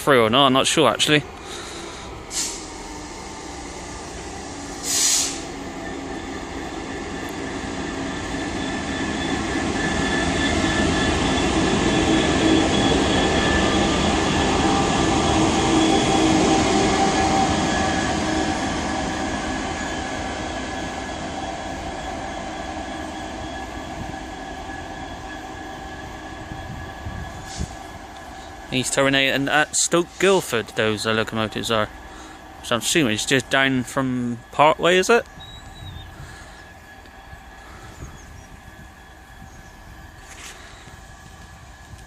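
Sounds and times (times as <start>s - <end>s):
locomotive engines passing: 0.0s - 42.0s
short sharp hiss: 2.3s - 2.8s, 4.8s - 5.5s.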